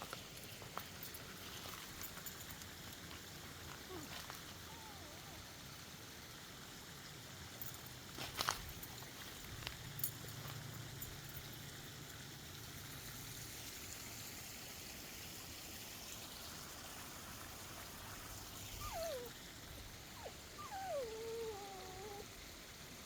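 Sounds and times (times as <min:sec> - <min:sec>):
water trickling in a stream: 0:00.0 - 0:23.0
dog whining: 0:03.9 - 0:05.5, 0:18.6 - 0:22.3.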